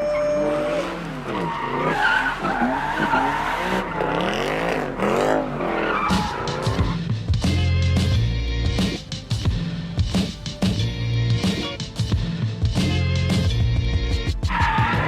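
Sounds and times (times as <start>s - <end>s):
tyres squealing and skidding: 0.0s - 7.1s, 14.3s - 15.0s
car engines revving hard: 0.0s - 15.0s.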